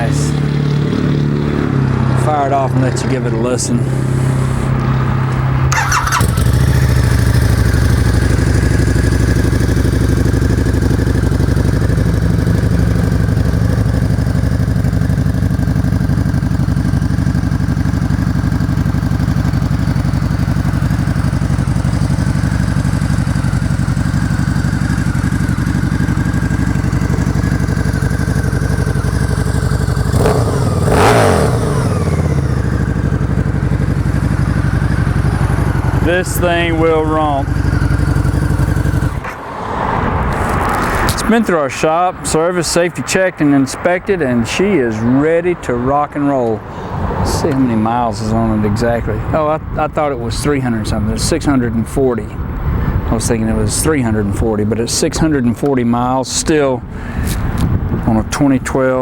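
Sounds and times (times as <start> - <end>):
motorcycle engine revving: 0.0 - 41.2
motorcycle engine idling: 5.7 - 39.5.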